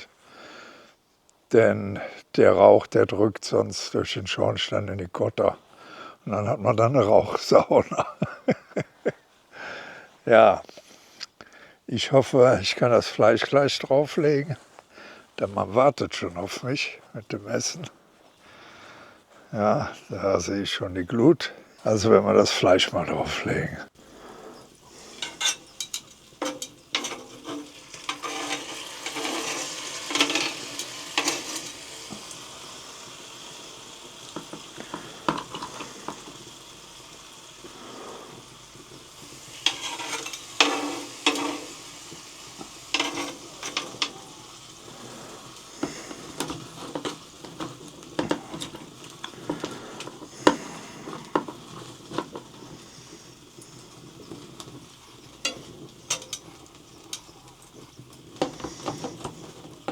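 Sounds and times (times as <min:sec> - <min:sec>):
meat sizzling on a grill: 0:01.9 - 0:11.2, 0:23.9 - 0:59.9
metal clattering on grill grate: 0:24.1 - 0:59.9.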